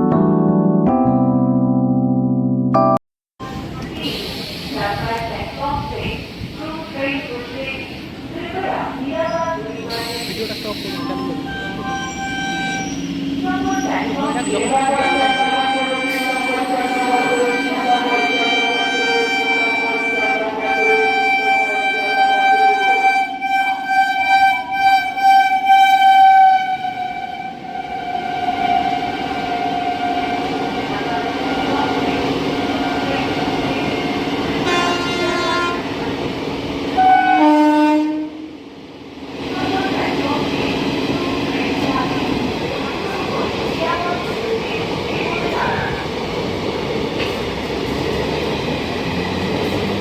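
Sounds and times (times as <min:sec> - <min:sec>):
passing train rumbling: 0:03.4 - 0:50.0
train horn blasts: 0:11.0 - 0:36.1, 0:36.9 - 0:38.6.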